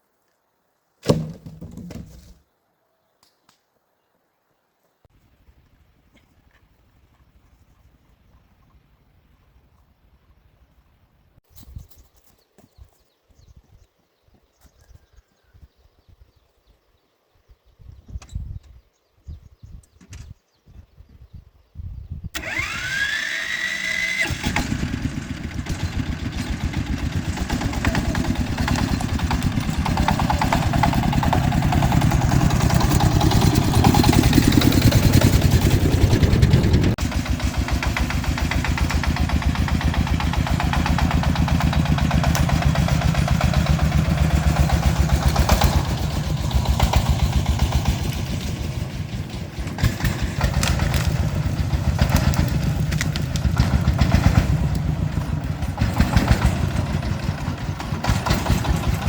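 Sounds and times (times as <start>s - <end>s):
truck engine starting and running: 22.4s - 59.0s.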